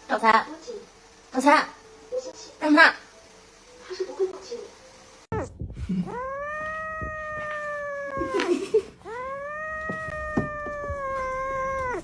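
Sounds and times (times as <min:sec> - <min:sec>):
cat yowling: 0:06.1 - 0:12.0.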